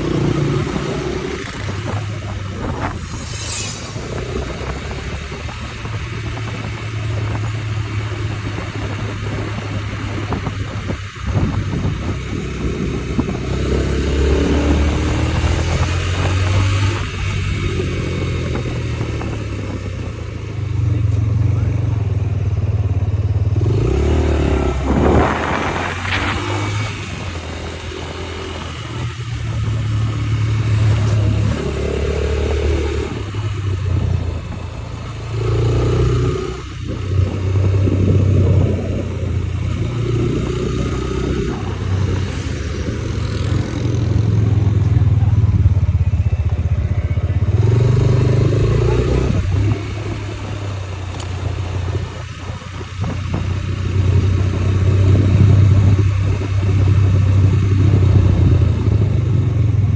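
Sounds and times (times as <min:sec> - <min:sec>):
motorcycle engine revving: 0:00.0 - 0:59.9
wind and road noise: 0:00.0 - 0:59.9.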